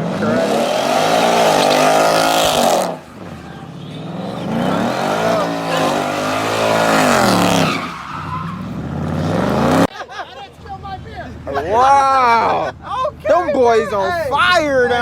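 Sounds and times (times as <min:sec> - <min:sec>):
car engine revving: 0:00.0 - 0:09.9
tyres squealing: 0:00.1 - 0:09.9.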